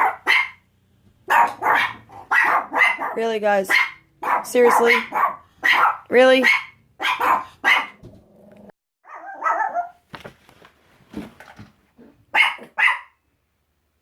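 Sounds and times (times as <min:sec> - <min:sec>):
dogs barking: 0:00.0 - 0:08.0, 0:09.0 - 0:10.0, 0:12.3 - 0:13.2.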